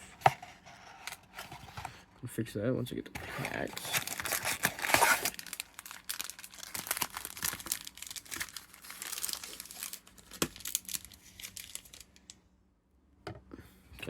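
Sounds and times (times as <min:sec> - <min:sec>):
foil packs crinkling: 0:03.4 - 0:12.3.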